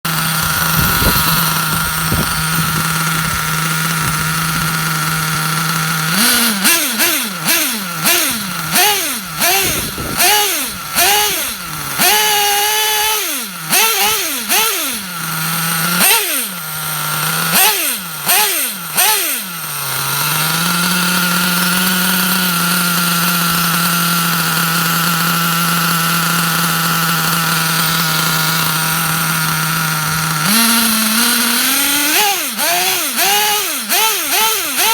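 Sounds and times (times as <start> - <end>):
model engine idling and revving: 0.0 - 34.9.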